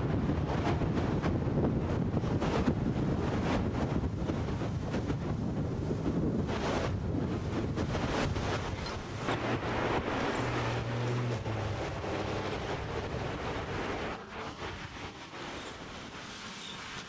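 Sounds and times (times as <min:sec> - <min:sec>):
storm wind gusting: 0:00.0 - 0:17.0
low steady horn tone: 0:09.2 - 0:14.6.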